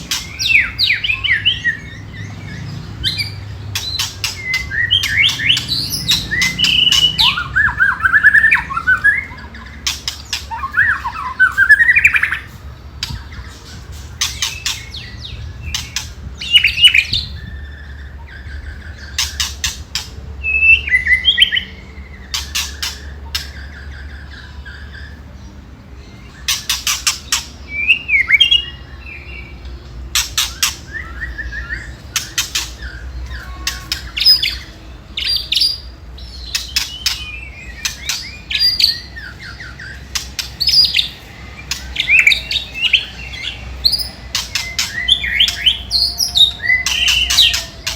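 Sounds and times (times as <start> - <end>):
bird whistled phrases: 3.0 - 12.5, 30.2 - 47.9.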